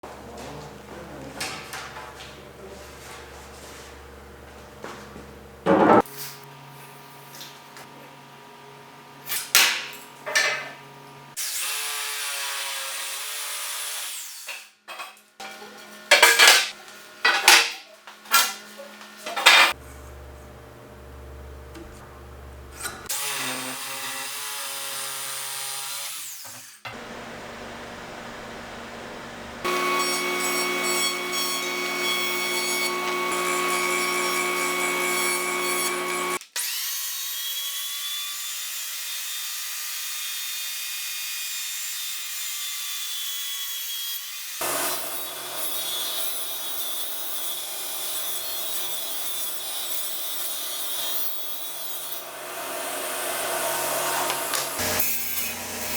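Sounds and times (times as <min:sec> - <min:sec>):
wood being cut: 0:19.7 - 0:55.9
power tool motor whine: 0:26.9 - 0:36.4, 0:44.6 - 0:46.6, 0:52.2 - 0:55.9.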